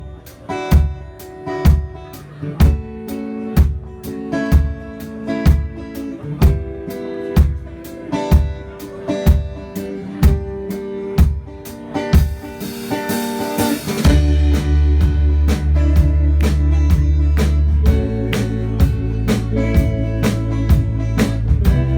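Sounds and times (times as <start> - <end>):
guitar chords: 0.0 - 21.9
live rock band playing: 0.0 - 21.9
heavy bass: 13.1 - 21.9.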